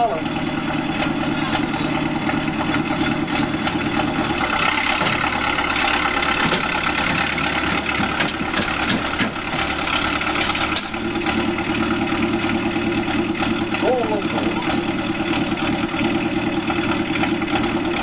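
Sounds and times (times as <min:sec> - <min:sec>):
vehicle engine running: 0:00.0 - 0:18.0
sharp knocks: 0:06.4 - 0:09.5.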